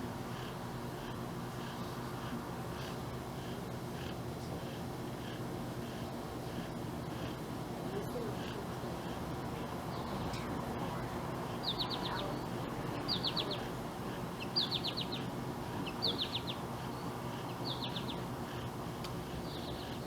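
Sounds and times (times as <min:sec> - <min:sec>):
small bird chirping: 0:11.6 - 0:13.7, 0:14.3 - 0:18.6, 0:19.3 - 0:20.0.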